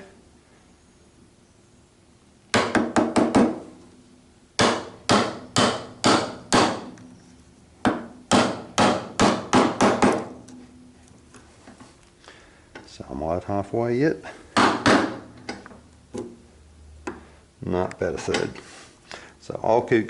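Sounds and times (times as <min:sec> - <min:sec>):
mallet striking chisel: 0:04.6 - 0:07.0, 0:07.8 - 0:10.4.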